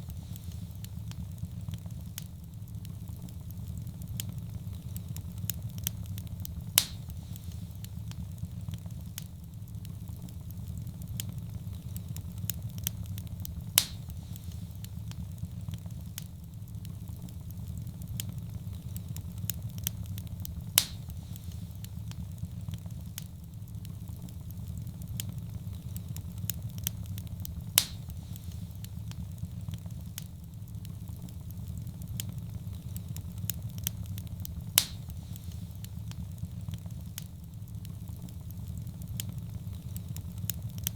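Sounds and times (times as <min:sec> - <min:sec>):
wood fire crackling: 0:00.0 - 0:40.9
loud sharp pop of fire: 0:06.6 - 0:08.2, 0:13.6 - 0:15.2, 0:20.6 - 0:22.2, 0:27.5 - 0:29.2, 0:34.6 - 0:36.2.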